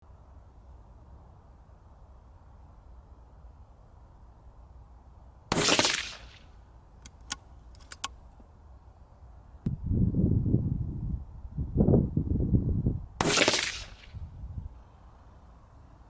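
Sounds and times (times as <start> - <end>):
suppressed rifle shot: 5.5 - 6.4, 7.0 - 8.3, 13.2 - 14.1
light metallic clicks: 7.0 - 8.4.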